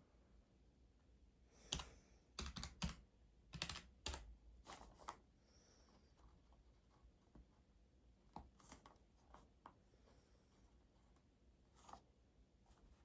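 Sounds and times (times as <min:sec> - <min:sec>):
key presses clicking: 0:01.7 - 0:03.0, 0:03.6 - 0:04.3.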